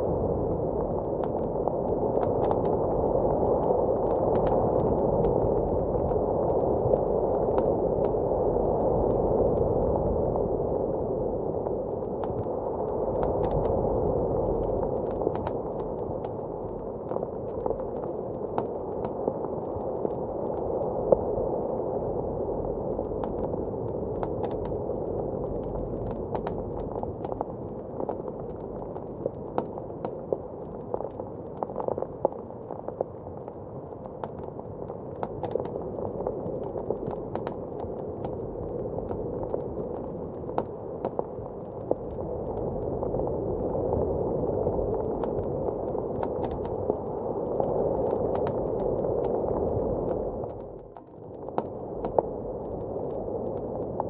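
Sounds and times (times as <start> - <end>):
muffled blizzard wind: 0.0 - 54.0
wood fire crackling and popping: 0.1 - 54.0.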